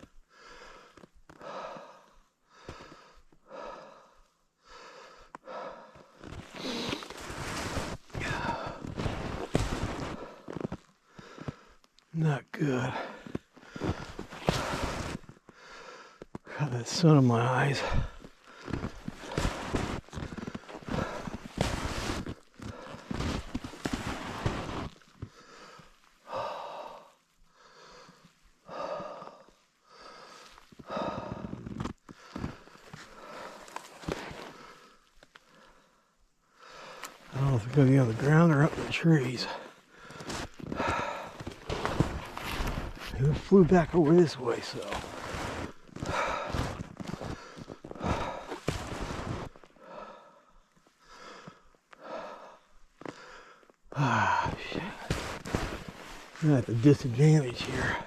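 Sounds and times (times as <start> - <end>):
person breathing heavily: 0.2 - 11.8, 12.6 - 16.6, 17.6 - 58.0
footsteps crunching: 6.2 - 11.5, 13.2 - 15.4, 17.8 - 25.4, 37.3 - 49.7, 54.2 - 58.0
footsteps crunching through undergrowth: 41.4 - 48.0.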